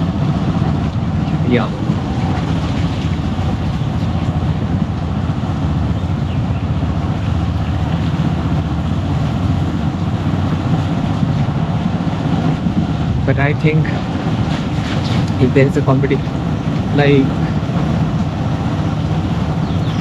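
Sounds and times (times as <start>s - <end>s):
motorcycle engine rumble: 0.0s - 20.0s
wind noise on microphone: 0.0s - 20.0s.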